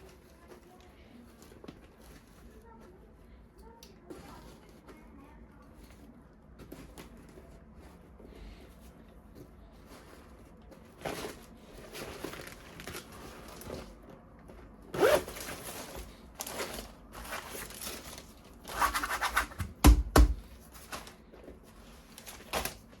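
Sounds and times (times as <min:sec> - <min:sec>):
plastic packaging rustling: 0:09.7 - 0:23.0.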